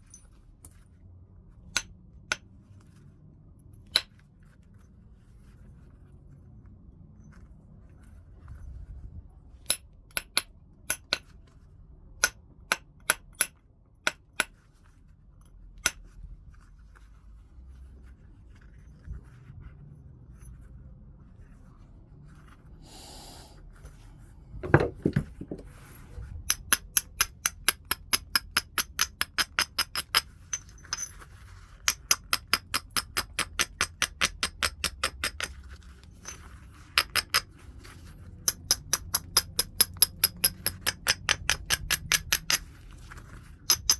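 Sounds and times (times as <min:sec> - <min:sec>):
heavy knock on stone: 0:24.6 - 0:25.6
stone knapping clicks: 0:38.5 - 0:42.6.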